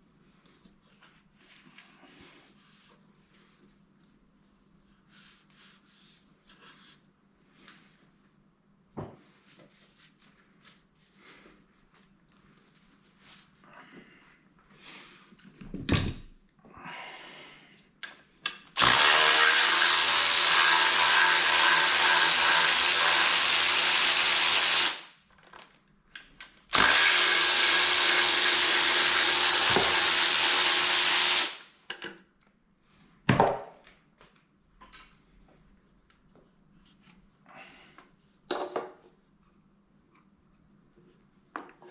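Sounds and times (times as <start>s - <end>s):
handheld power tool motor running: 18.8s - 25.1s, 26.7s - 31.6s.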